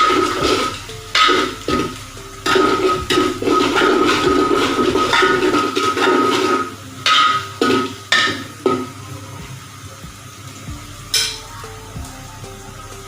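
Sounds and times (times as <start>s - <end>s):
metal spoon clanking on pot: 0.0s - 8.9s, 11.1s - 11.4s
onions sizzling in oil: 0.0s - 13.0s.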